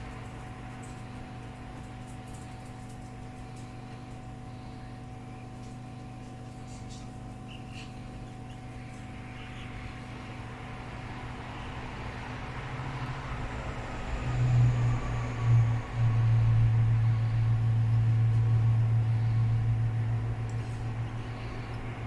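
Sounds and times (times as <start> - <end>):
small electric motor humming: 8.8 - 22.0.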